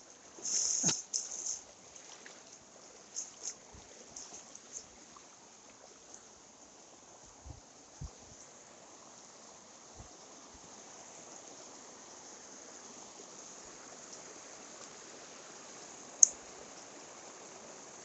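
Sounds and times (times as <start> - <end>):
stream water running: 0.0 - 18.0.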